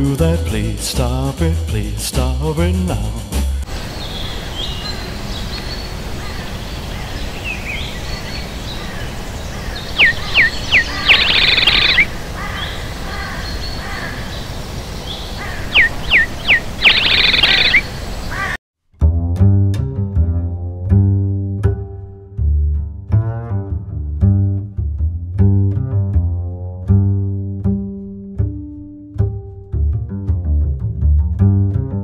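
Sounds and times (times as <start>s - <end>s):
faint bird chirps: 3.8s - 18.6s
bird whistling and trilling: 9.7s - 12.8s, 15.0s - 18.0s.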